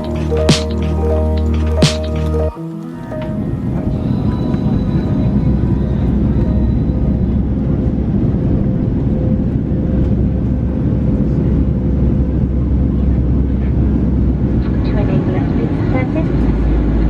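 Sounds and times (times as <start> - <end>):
vehicle engine rumble: 3.6 - 17.0.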